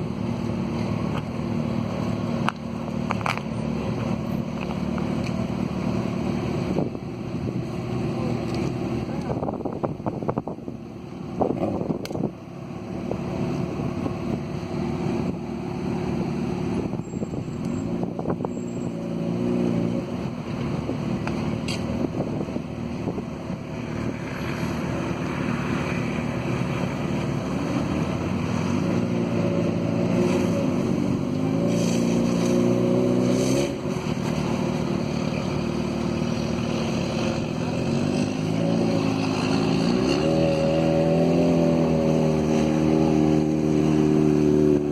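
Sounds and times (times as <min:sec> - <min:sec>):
vehicle engines running: 0:00.0 - 0:44.9
wind on microphone: 0:09.2 - 0:12.4.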